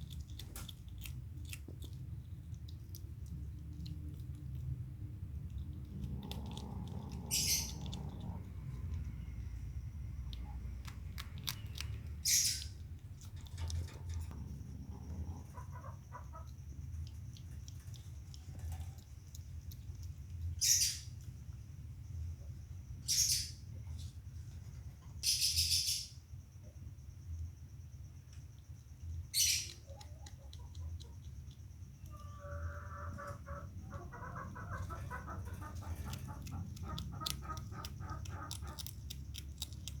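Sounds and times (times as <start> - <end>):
small bird chirping: 0.0 - 24.1, 24.7 - 26.4, 28.2 - 40.0
low steady hum: 0.0 - 40.0
low steady rumble: 0.0 - 40.0
bird clucking: 5.9 - 8.5, 13.5 - 16.6, 32.1 - 39.1.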